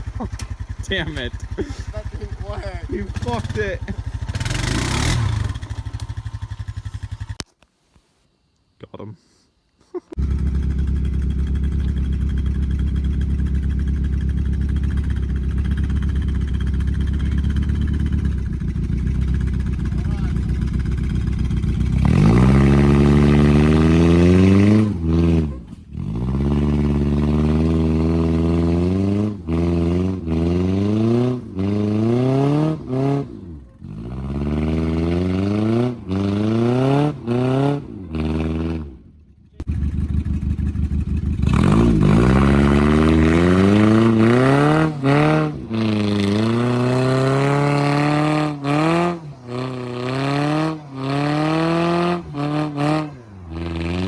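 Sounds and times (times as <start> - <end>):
car engine revving hard: 3.0 - 6.0, 19.9 - 39.0, 41.4 - 54.0.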